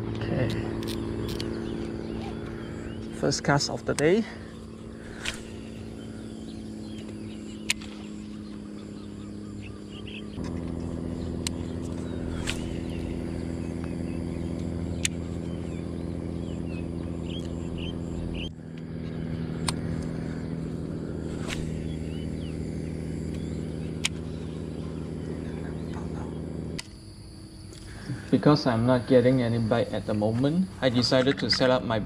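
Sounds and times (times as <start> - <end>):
birds chirping: 0.0 - 32.0
low machine hum: 0.0 - 32.0
sharp clicks: 0.1 - 3.1, 5.1 - 5.9, 6.9 - 8.7, 10.3 - 13.1, 14.6 - 15.3, 19.6 - 20.2, 23.3 - 24.3, 26.7 - 27.0.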